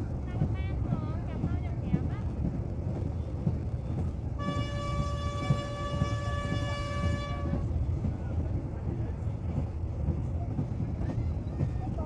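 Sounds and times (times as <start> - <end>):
train rumbling along track: 0.0 - 12.0
train horn blast: 4.4 - 7.7.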